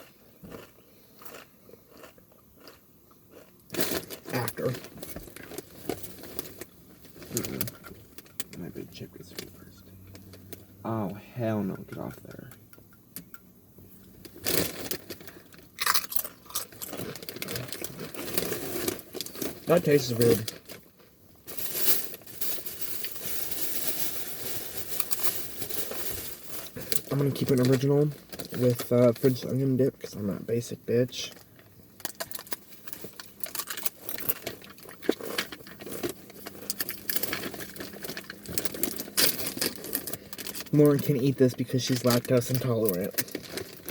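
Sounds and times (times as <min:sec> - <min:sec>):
quiet chewing: 0:00.0 - 0:03.8
chip crunching between teeth: 0:00.0 - 0:07.9, 0:14.3 - 0:20.9, 0:32.0 - 0:43.9.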